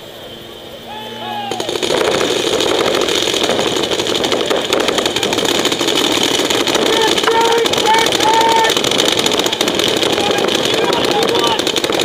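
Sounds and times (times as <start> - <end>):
paintball markers firing rapidly: 1.6 - 12.0
players' voices: 4.0 - 12.0.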